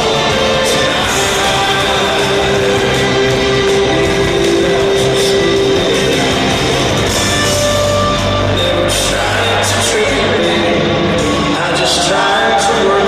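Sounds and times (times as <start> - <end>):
instrumental rock band playing: 0.0 - 13.0.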